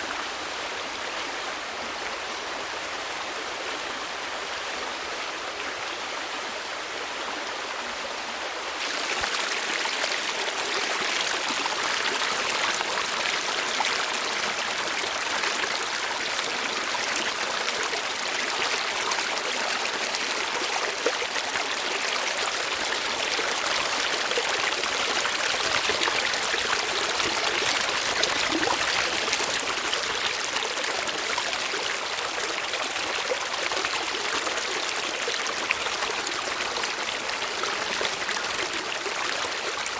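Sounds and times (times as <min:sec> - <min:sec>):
running water rushing: 0:08.7 - 0:39.9.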